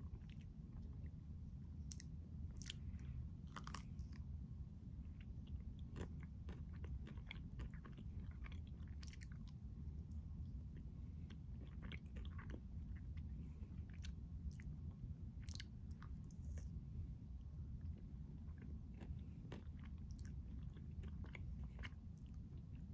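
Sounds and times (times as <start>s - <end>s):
steady low hum: 0.0s - 22.9s
crunchy chewing: 1.8s - 4.2s, 5.2s - 9.6s, 10.7s - 14.7s, 15.4s - 16.8s, 17.8s - 22.9s.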